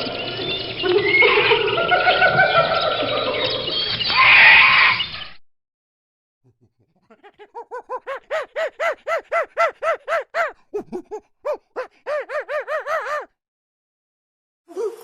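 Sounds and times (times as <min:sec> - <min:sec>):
monkey rhythmic hoots: 0:06.5 - 0:13.3
monkeys chattering: 0:06.5 - 0:13.3.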